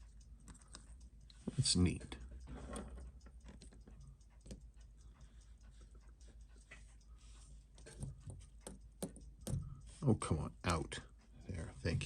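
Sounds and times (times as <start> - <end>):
small metal clicks and taps: 0.0 - 5.0, 7.7 - 9.8.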